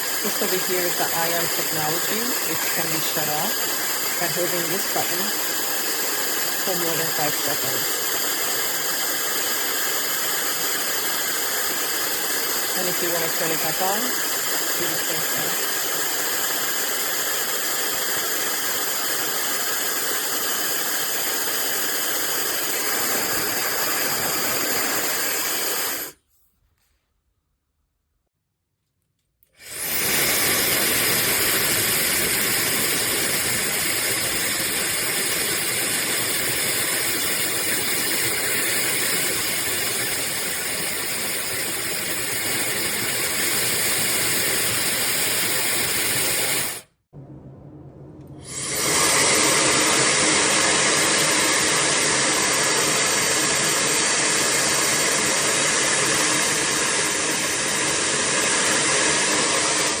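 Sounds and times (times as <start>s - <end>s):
hair dryer running: 0.0s - 26.2s, 29.6s - 46.9s, 48.4s - 60.0s.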